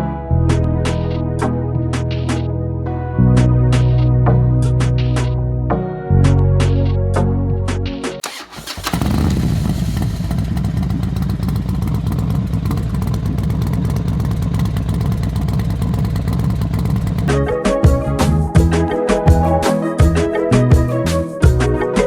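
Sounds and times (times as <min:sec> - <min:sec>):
background music: 0:00.0 - 0:08.2, 0:17.2 - 0:22.0
motorcycle engine idling: 0:08.3 - 0:21.7.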